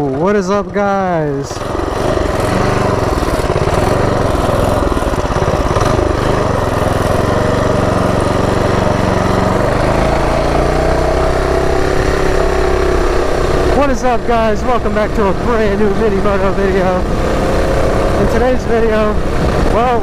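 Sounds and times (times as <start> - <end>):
mini bike engine running: 0.0 - 20.0.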